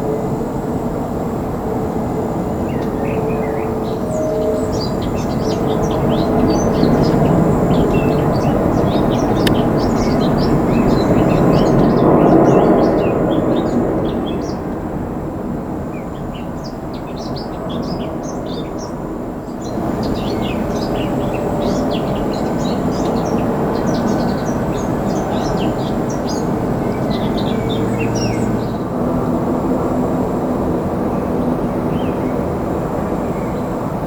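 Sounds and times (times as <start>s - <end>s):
jet engines rumbling: 0.0s - 34.0s
small birds chirping: 2.6s - 14.7s, 15.9s - 28.9s.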